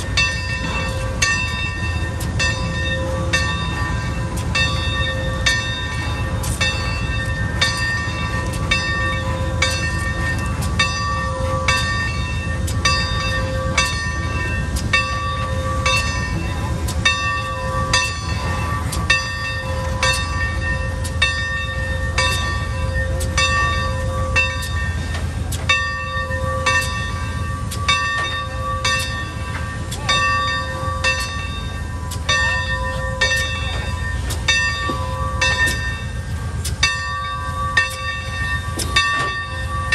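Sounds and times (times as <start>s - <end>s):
locomotive bell ringing: 0.0s - 39.9s
locomotive rumble: 0.0s - 39.9s.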